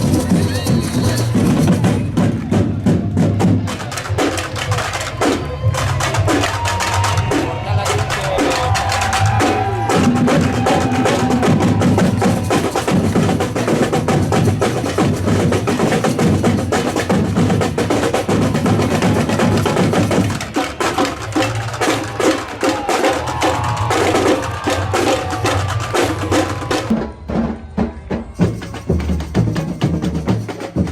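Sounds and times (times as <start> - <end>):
clacking high percussion: 0.0 - 30.9
samba drum corps playing: 0.0 - 30.9.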